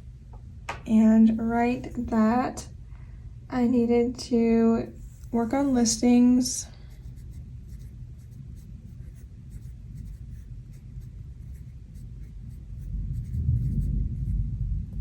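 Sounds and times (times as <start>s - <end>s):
fountain pen writing on paper: 6.9s - 14.3s
low rumble of thunderstorm: 8.4s - 15.0s.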